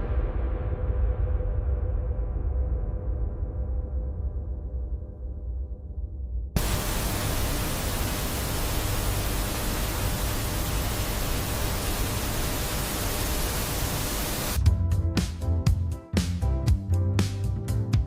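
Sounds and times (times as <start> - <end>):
loud hissing rush of noise: 6.6 - 14.6
music with a beat: 14.6 - 18.0.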